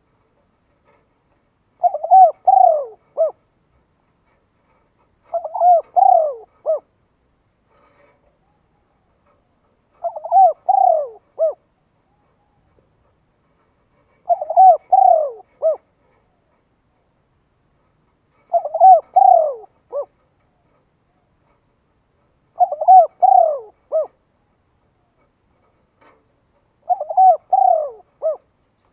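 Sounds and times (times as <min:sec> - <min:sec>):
bird cooing: 0:01.8 - 0:03.4, 0:05.2 - 0:06.9, 0:07.8 - 0:12.8, 0:14.1 - 0:15.9, 0:18.3 - 0:20.2, 0:22.6 - 0:24.2, 0:26.8 - 0:28.5.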